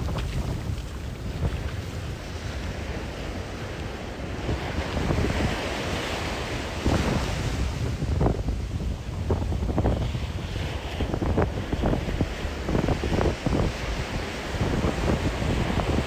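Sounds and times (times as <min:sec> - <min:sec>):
surf washing onto beach: 0:00.0 - 0:16.0
wind buffeting microphone: 0:00.0 - 0:16.0.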